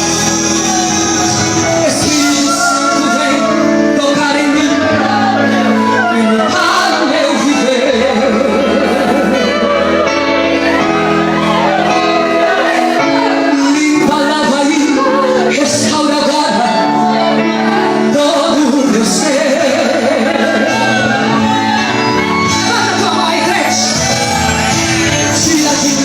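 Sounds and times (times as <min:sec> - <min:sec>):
woman singing: 0:00.0 - 0:09.8, 0:11.4 - 0:21.9
band playing: 0:00.0 - 0:26.0
sustained keyboard chords: 0:00.0 - 0:26.0.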